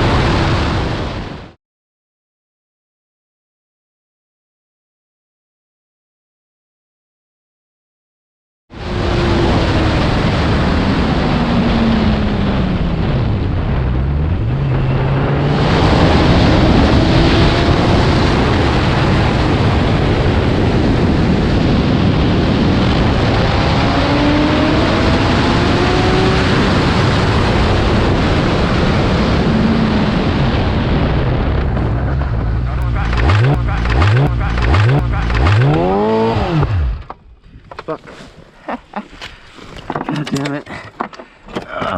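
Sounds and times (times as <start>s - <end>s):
wind noise on microphone: 8.8s - 35.5s
motorcycle engine: 31.4s - 37.3s.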